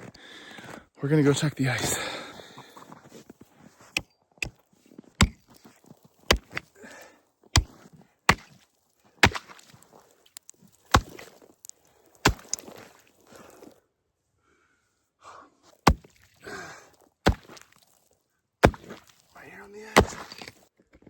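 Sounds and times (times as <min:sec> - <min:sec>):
chopping strikes on ice: 0:05.2 - 0:06.7, 0:07.6 - 0:08.6, 0:09.2 - 0:13.0, 0:15.9 - 0:16.3, 0:17.2 - 0:17.8, 0:18.6 - 0:19.2, 0:19.9 - 0:20.6.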